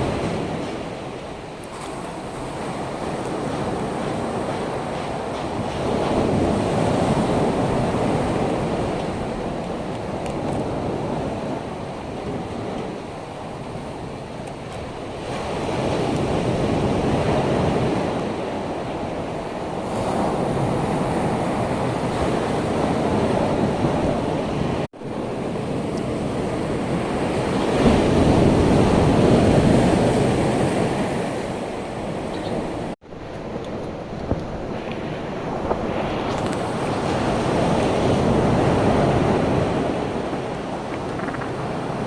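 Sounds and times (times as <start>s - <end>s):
surf rushing: 0.0s - 42.0s
wind gusts on microphone: 0.0s - 42.0s.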